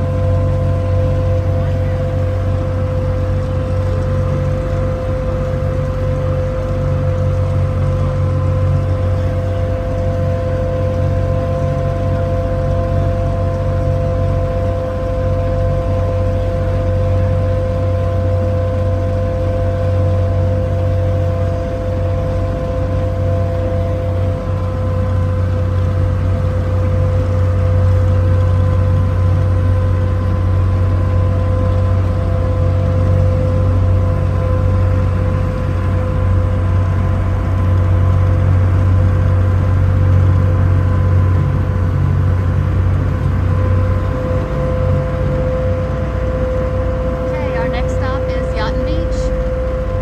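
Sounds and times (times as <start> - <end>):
boat engine droning: 0.0 - 50.0
steady whine: 43.3 - 50.0.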